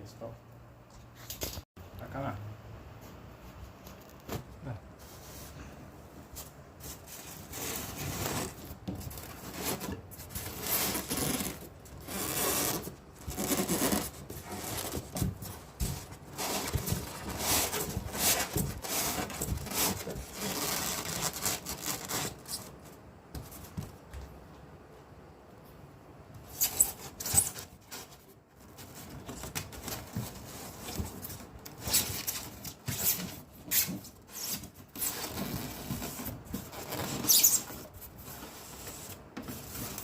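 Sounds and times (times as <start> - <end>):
irregular scraping and rubbing: 4.9 - 24.1, 26.4 - 40.0.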